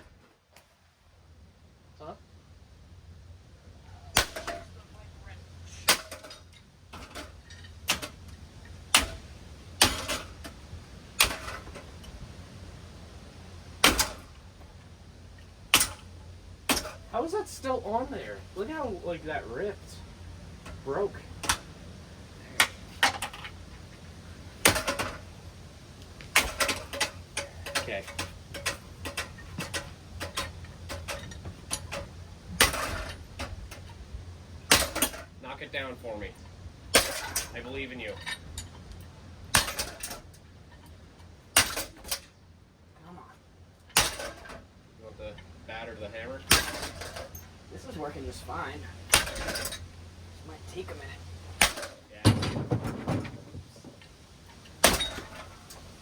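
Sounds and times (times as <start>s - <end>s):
low steady hum: 0.0s - 56.0s
objects striking ceiling fan: 5.7s - 12.5s, 13.7s - 17.4s, 19.9s - 35.3s, 36.4s - 42.4s
ceiling fan clicking: 19.9s - 35.1s.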